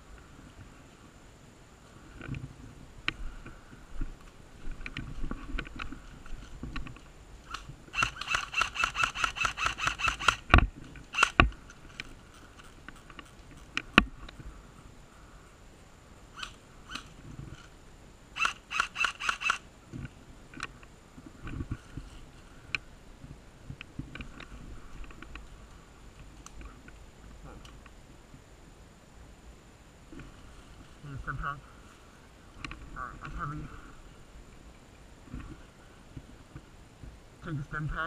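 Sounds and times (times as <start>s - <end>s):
airsoft gun firing bursts: 7.9s - 11.5s, 18.4s - 19.6s.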